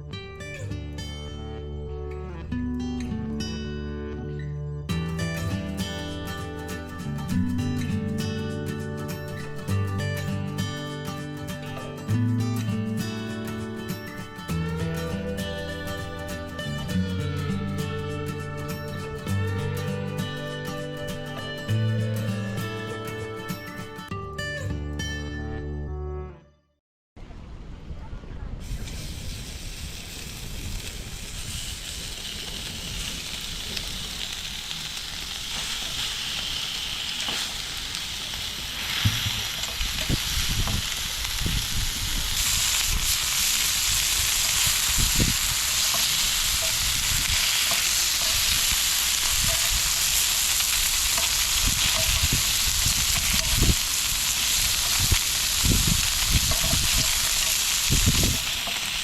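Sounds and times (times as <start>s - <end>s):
food sizzling in a pan: 28.6s - 59.0s.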